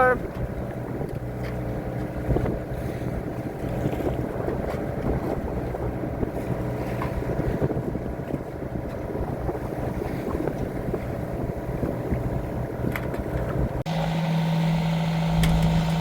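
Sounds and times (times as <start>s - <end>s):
wind buffeting microphone: 0.0s - 13.9s
boat engine droning: 0.0s - 16.0s.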